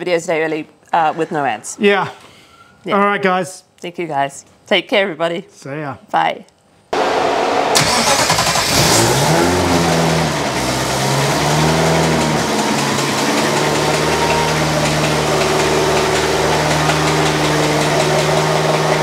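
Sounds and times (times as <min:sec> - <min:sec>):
car engine revving and idling: 0:07.0 - 0:19.0.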